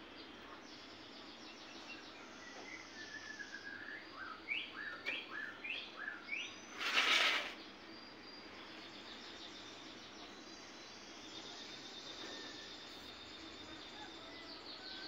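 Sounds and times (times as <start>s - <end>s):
birds chirping: 0.0s - 15.0s
faint outdoor ambience: 0.0s - 15.0s
loud rustling whoosh: 6.8s - 7.6s.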